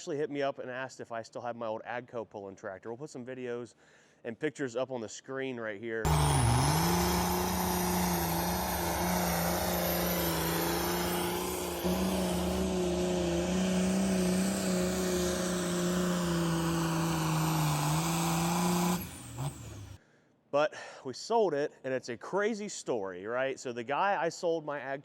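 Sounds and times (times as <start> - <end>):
tractor engine running hard: 6.1 - 20.0.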